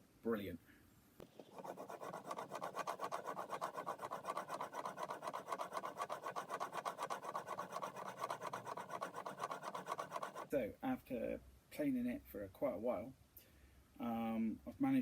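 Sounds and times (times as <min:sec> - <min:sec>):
chisel scraping on sharpening stone: 0:01.5 - 0:10.5.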